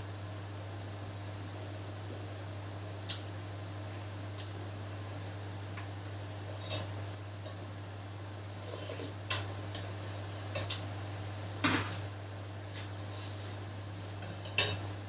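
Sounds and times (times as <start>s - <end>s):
steady low hum: 0.0s - 15.0s
utensils clinking on cookware: 14.2s - 14.8s.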